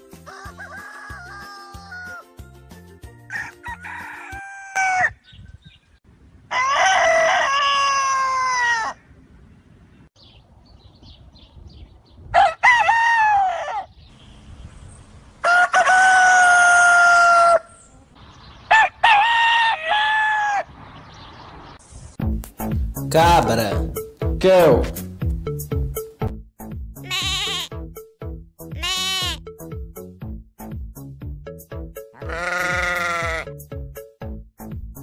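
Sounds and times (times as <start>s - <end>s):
rooster crowing: 0.1s - 2.4s, 3.3s - 5.2s, 6.5s - 9.0s, 12.3s - 13.9s, 15.4s - 17.8s, 18.7s - 20.7s.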